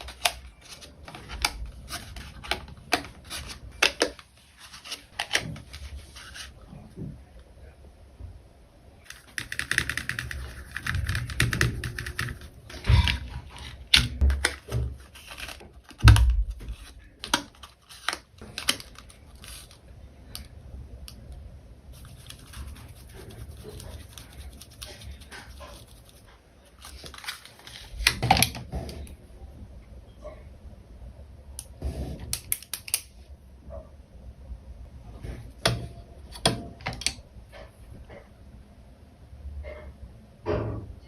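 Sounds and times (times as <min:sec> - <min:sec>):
packaging rustling: 0:10.2 - 0:19.9, 0:22.0 - 0:28.1.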